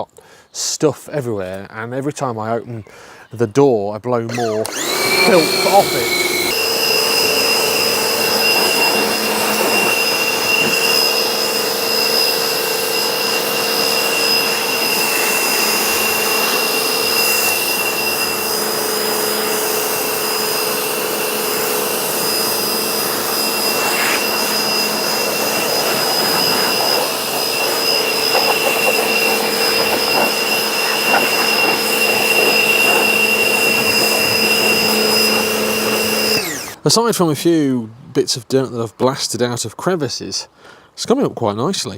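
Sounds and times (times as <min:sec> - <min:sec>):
electric air blower whining: 0:04.3 - 0:36.8.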